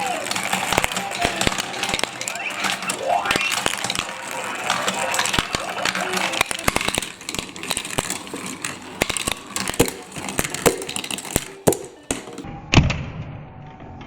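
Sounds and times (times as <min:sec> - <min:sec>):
marbles clattering on plastic: 0:00.0 - 0:12.5.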